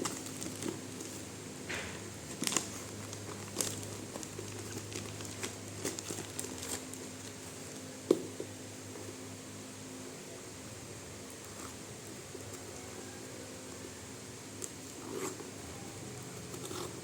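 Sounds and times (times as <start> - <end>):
packaging crinkling and rustling: 0.0 - 7.9
faint steady hum: 0.0 - 17.0.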